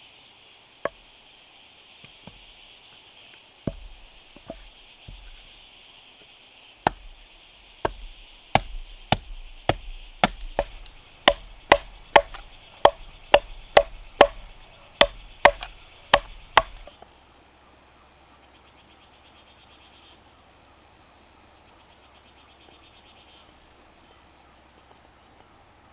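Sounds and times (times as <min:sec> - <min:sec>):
hand tool chopping wood: 0:03.7 - 0:05.4, 0:06.8 - 0:07.2, 0:07.8 - 0:16.9.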